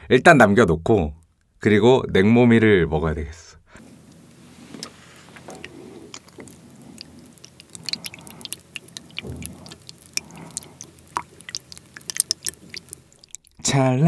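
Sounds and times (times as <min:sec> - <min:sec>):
chopsticks stirring noodles in broth: 0:04.1 - 0:13.6.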